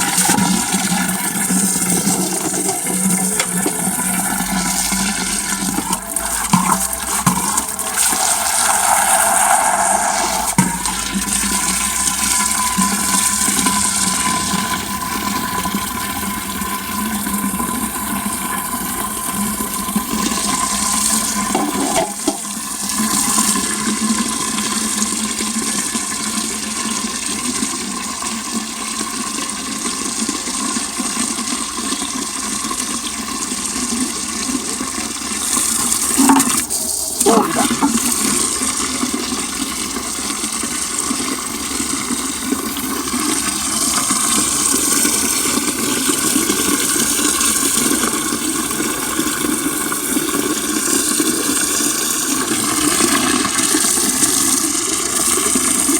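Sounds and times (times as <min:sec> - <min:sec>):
water pouring into a crock: 0:00.0 - 0:09.0, 0:29.4 - 0:55.9.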